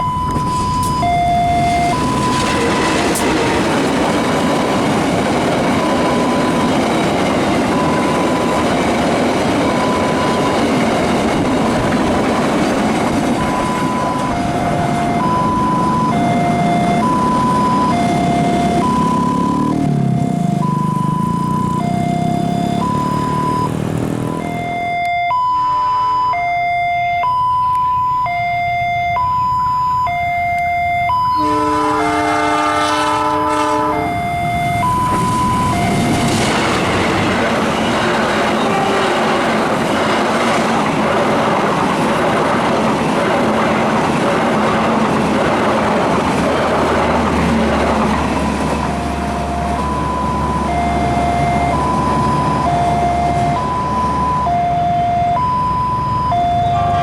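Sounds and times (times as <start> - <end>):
train wheel and rail noise: 0.0 - 22.1, 27.2 - 57.0
level crossing warning alarm: 0.0 - 57.0
locomotive horn: 31.1 - 40.0, 47.5 - 55.4.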